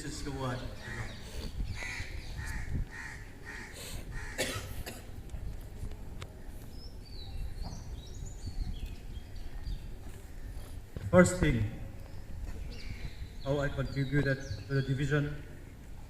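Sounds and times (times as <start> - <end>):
person coughing: 4.4 - 5.1.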